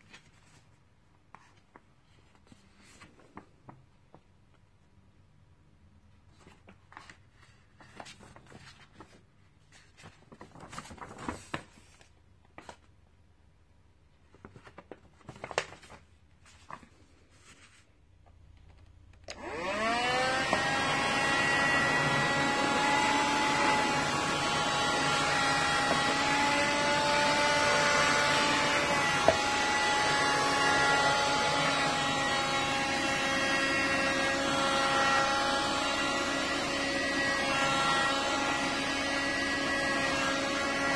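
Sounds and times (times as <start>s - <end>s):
handheld vacuum motor whining: 19.2s - 40.9s.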